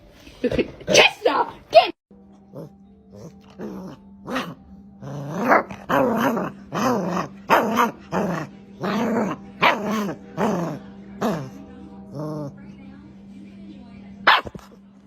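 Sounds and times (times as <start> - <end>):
dog barking growly: 2.5 - 12.6, 14.2 - 14.7.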